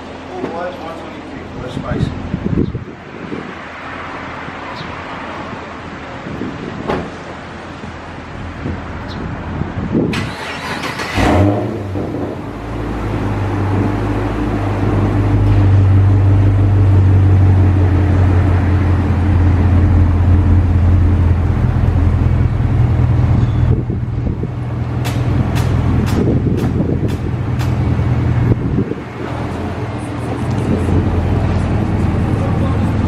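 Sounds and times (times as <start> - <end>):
car engine starting and idling: 10.0 - 33.0.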